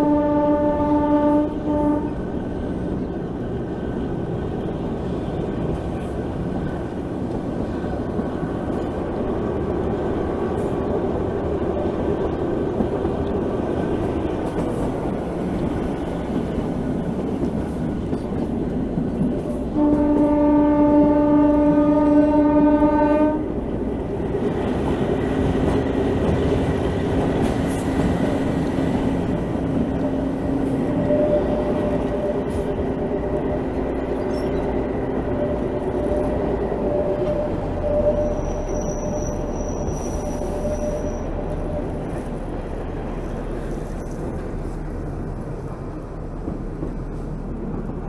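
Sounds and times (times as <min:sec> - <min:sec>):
train horn blast: 0:00.0 - 0:02.3, 0:19.7 - 0:23.6
train wheels rattling on track: 0:00.0 - 0:48.0.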